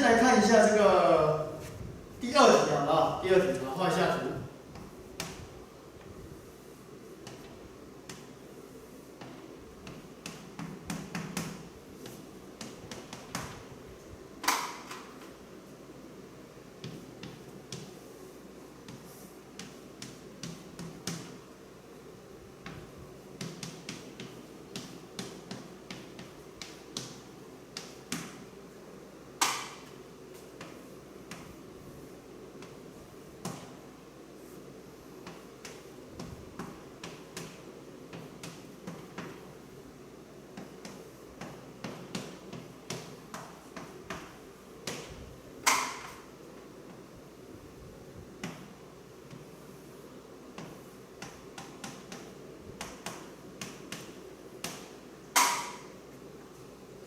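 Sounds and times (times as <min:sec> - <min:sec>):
faint room hum: 0:00.0 - 0:57.0
sharp knocks: 0:55.4 - 0:55.9.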